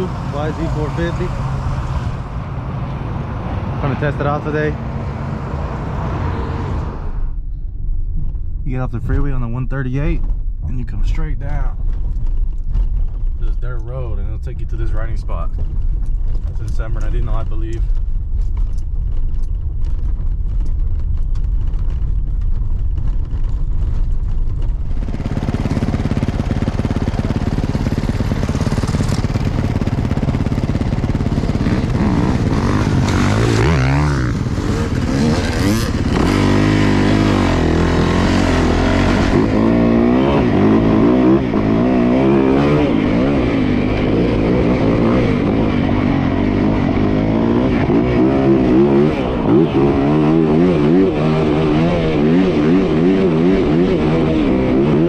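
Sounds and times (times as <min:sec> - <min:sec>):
dirt bike engine revving: 0:00.0 - 0:06.8, 0:25.0 - 0:55.0.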